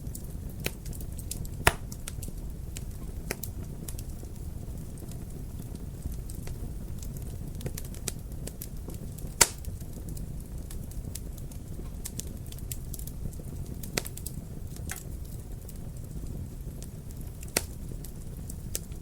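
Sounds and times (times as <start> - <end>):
wood fire crackling: 0.0 - 19.0
loud fire pop: 1.5 - 2.2, 9.4 - 9.7.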